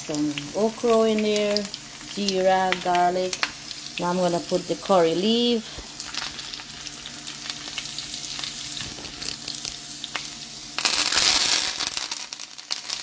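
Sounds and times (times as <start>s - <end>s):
oil sizzling in a frying pan: 0.0s - 13.0s
small crackles: 5.7s - 13.0s.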